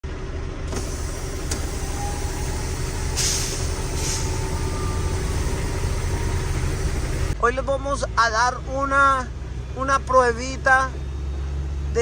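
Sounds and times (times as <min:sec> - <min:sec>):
diesel truck engine rumbling: 0:00.0 - 0:12.0
air brake hiss: 0:00.7 - 0:06.4.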